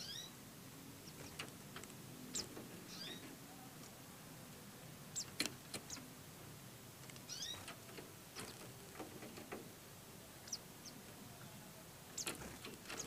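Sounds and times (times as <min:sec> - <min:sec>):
high-pitched bird chirps: 0:00.0 - 0:00.4, 0:02.3 - 0:03.2.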